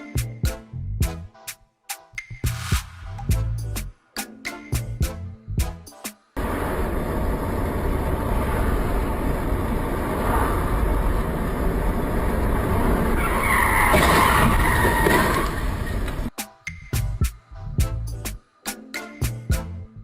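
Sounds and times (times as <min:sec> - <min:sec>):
car road noise: 0:06.4 - 0:16.3
tyres squealing: 0:13.0 - 0:16.3.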